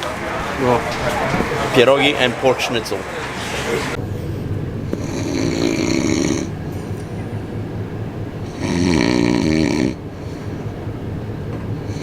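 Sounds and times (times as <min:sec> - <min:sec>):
train rumble: 0:00.0 - 0:12.0
person snoring: 0:05.0 - 0:06.5, 0:08.5 - 0:10.0.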